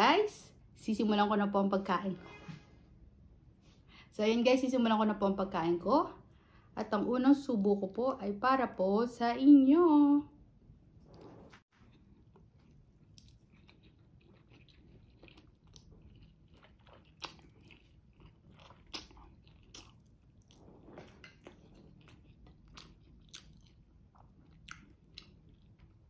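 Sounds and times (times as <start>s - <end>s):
chewing with wet mouth smacks: 11.8s - 26.0s.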